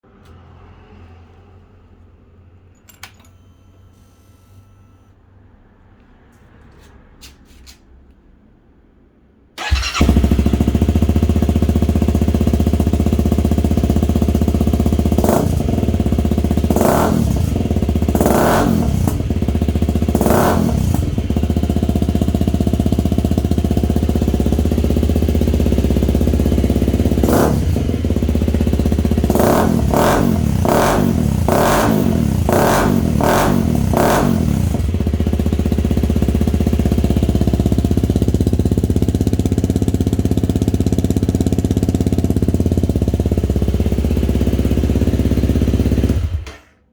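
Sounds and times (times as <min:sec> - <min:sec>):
engine throttle blips: 0:09.6 - 0:35.1
motorcycle engine idling: 0:09.6 - 0:46.7.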